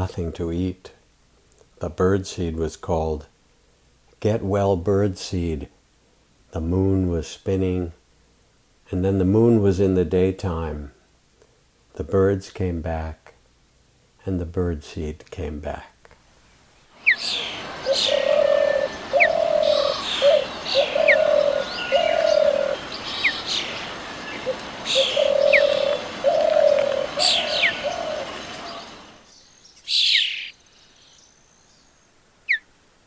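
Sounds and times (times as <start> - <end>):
low repeated bird note: 17.0 - 29.3
bird chirps and whistles: 29.8 - 30.6.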